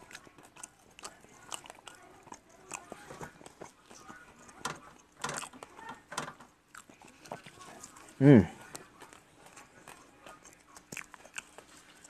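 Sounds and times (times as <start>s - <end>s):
person chewing wet mouth sounds: 0.0s - 4.2s, 6.7s - 12.0s.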